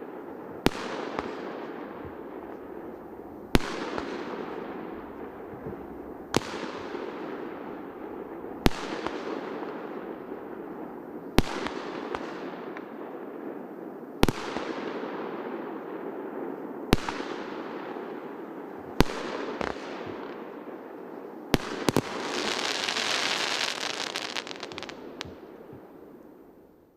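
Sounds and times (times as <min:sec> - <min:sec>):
firework bangs: 0:00.0 - 0:10.2, 0:21.5 - 0:26.0
firework crackling: 0:00.0 - 0:10.5, 0:21.5 - 0:26.0
firework hiss: 0:21.6 - 0:25.4.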